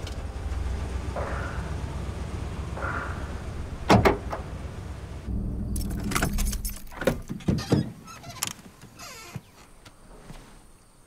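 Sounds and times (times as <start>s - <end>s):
car engine idling: 0.0s - 7.3s
keys jingling: 5.7s - 7.4s.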